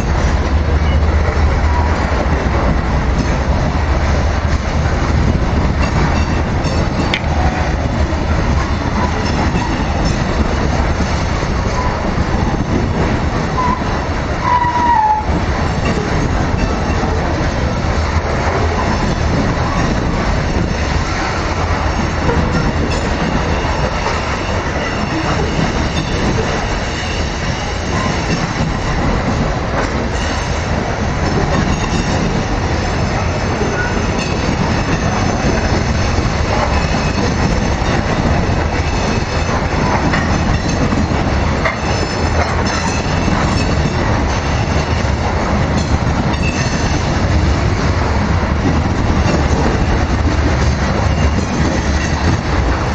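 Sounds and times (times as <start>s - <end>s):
train wheels rumbling on rails: 0.0s - 52.9s
high-pitched wheel squeal: 13.6s - 15.4s.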